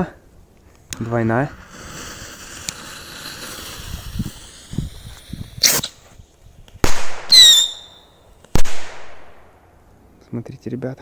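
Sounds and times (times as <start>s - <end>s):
firecracker whistling: 1.5s - 6.0s, 6.9s - 8.2s
firecracker bangs: 6.8s - 9.4s.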